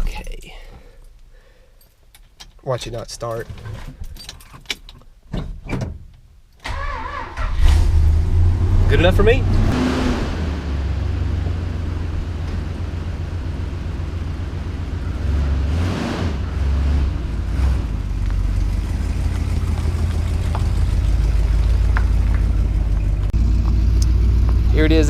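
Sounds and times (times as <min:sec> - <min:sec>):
car engine rumbling and revving: 0:07.1 - 0:25.0.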